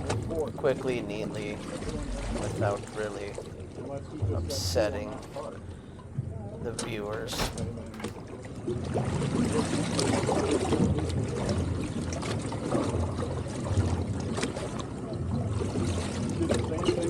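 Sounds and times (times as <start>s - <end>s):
boat engine hum: 0.0s - 8.6s
water sloshing against hull: 0.0s - 17.0s
light knocks: 6.8s - 8.3s.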